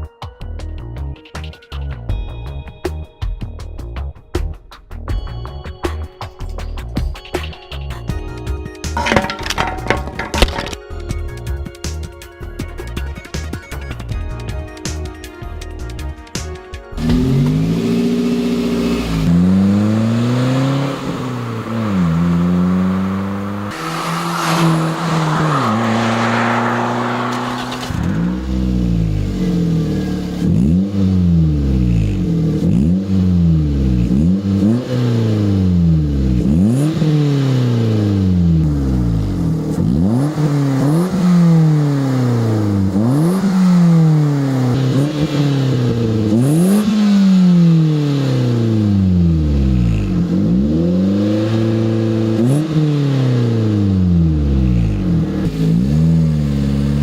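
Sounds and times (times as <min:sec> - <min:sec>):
car engine revving: 0:17.0 - 0:57.0.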